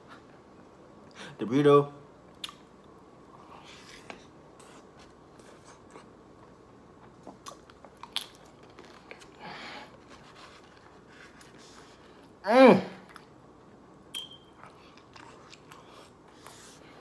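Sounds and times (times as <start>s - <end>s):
chewing and crunching: 5.4s - 9.4s, 14.5s - 16.6s.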